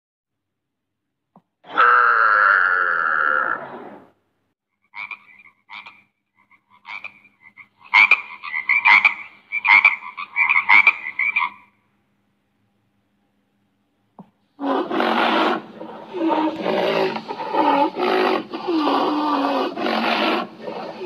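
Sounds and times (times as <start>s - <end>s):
frog croaking: 1.7s - 3.7s, 4.9s - 11.8s, 14.6s - 21.0s
wavering animal call: 1.7s - 4.0s, 14.6s - 21.0s.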